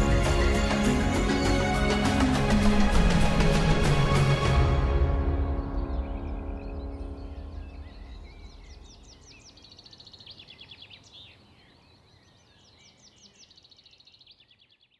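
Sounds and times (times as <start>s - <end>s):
music: 0.0s - 9.0s
birds calling: 5.3s - 14.8s.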